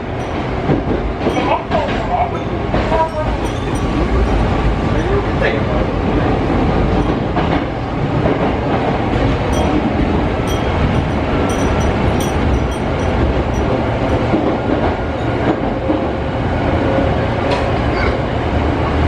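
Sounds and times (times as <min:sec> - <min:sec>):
wind chimes tinkling: 0:00.0 - 0:08.2, 0:09.2 - 0:15.6
train rumble and rail clatter: 0:00.0 - 0:19.0.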